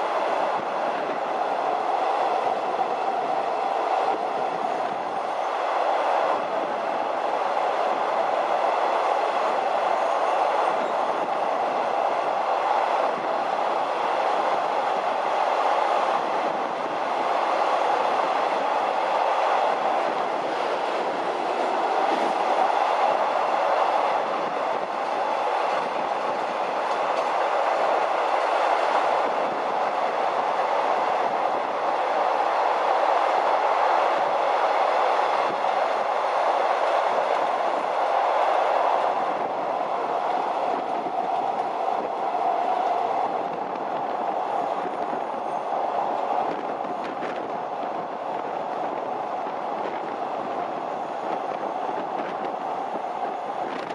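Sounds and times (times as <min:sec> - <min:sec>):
train wheels rumbling on rails: 0:00.0 - 0:53.9.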